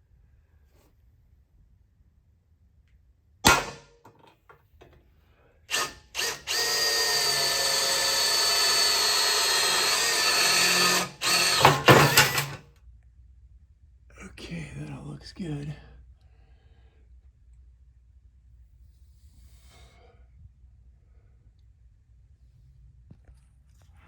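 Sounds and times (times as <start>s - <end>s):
electric drill boring metal: 5.7s - 12.6s.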